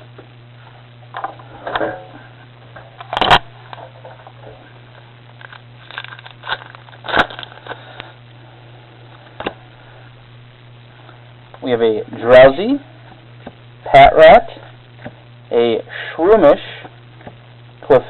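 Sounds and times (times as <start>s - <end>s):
foil wrapper crinkling: 5.3s - 8.2s
foil tearing: 5.4s - 7.9s.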